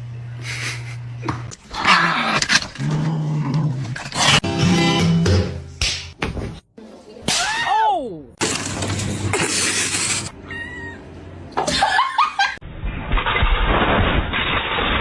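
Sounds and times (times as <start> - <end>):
cat meowing: 10.4 - 11.0.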